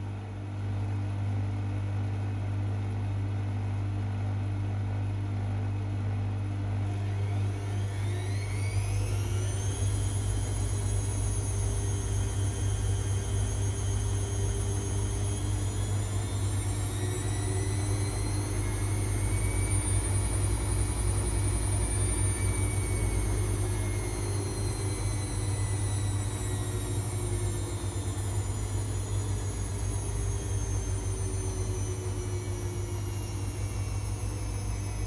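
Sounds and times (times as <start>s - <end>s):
washing machine motor whining: 6.7s - 35.0s
steady low hum: 8.9s - 35.0s.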